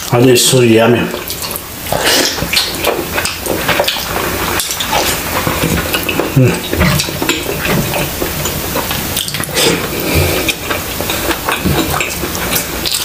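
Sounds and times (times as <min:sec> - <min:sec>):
close chewing and mouth smacking: 0:01.0 - 0:13.0.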